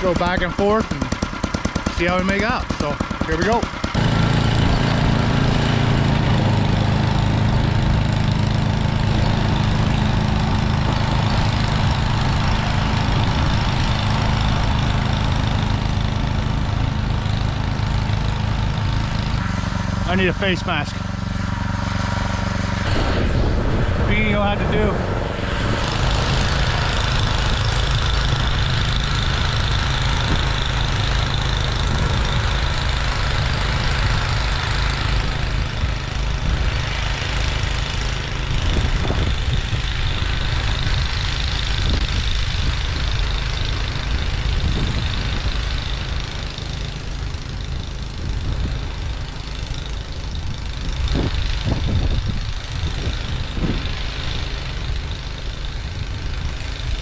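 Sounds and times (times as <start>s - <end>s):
snowblower running under load: 0.0s - 57.0s.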